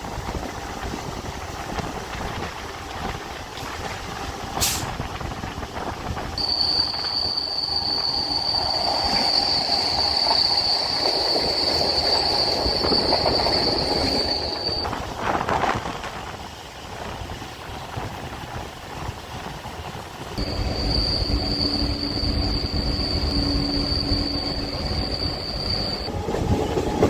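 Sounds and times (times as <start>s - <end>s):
electric train running on track: 0.0s - 27.0s
high-pitched whine: 6.4s - 15.0s, 20.4s - 26.1s.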